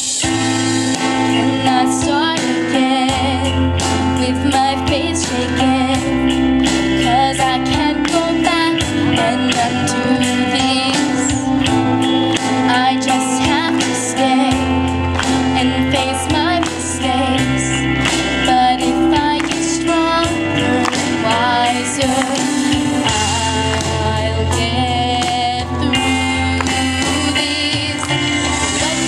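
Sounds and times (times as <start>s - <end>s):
backing track with bass and chords: 0.0s - 29.0s
girl singing pop ballad: 0.2s - 29.0s.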